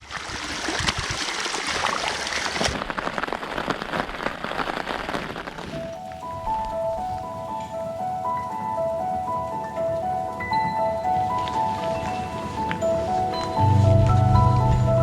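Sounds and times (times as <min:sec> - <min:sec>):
heavy rain pattering: 0:00.2 - 0:15.0
music with simple melody: 0:06.0 - 0:15.0.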